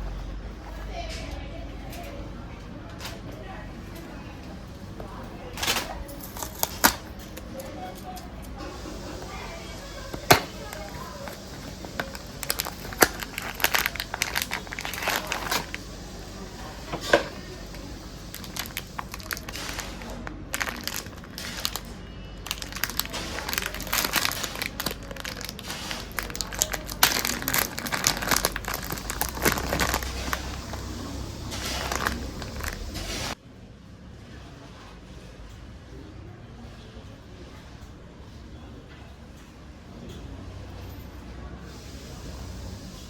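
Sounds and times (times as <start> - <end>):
plastic wrapper crinkling: 5.8 - 33.4.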